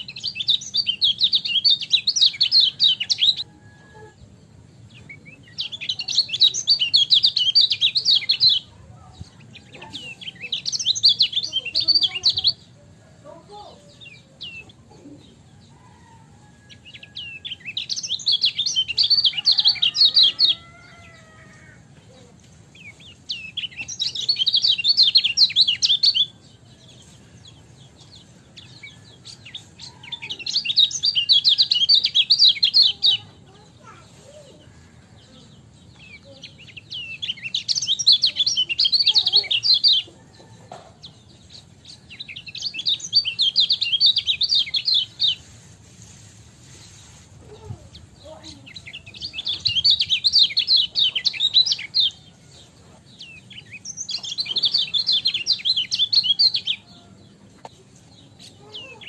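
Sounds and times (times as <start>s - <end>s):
bird twittering chatter: 46.7s - 52.2s.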